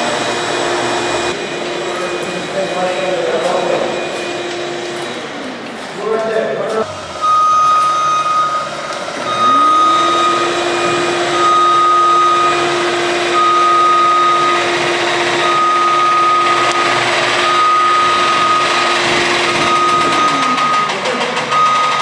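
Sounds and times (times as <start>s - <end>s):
motion-warning beeper: 6.8s - 22.0s
electric motor whine: 8.8s - 21.1s.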